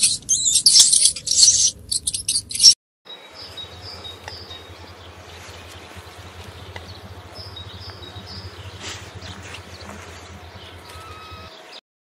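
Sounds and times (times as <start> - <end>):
faint high chirps: 0.0 - 11.8
steady low hum: 3.2 - 11.8.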